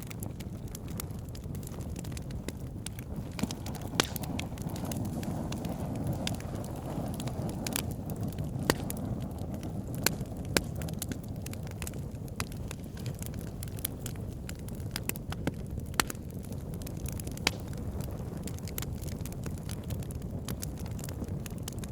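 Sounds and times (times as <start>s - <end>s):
campfire crackling: 0.0s - 21.9s
steady low rumble: 0.5s - 14.2s.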